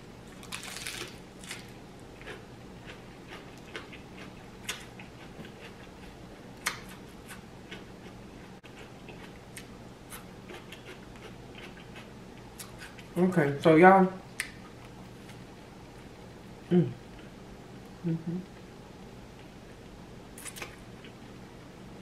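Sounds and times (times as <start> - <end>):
crisp bite into lettuce: 0.4 - 1.7
chewing with wet mouth clicks: 2.2 - 13.1.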